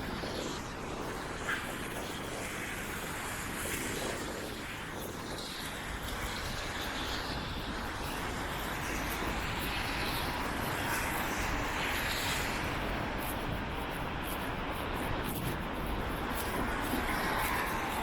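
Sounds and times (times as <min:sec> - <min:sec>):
storm wind rushing on microphone: 0:00.0 - 0:18.0.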